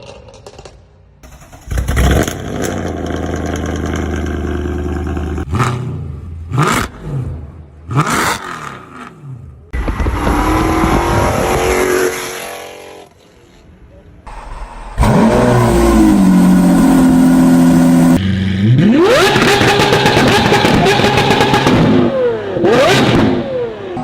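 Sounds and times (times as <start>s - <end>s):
engine revving with climbing pitch: 1.2s - 13.1s, 14.3s - 24.0s
car engine revving high: 14.3s - 23.8s.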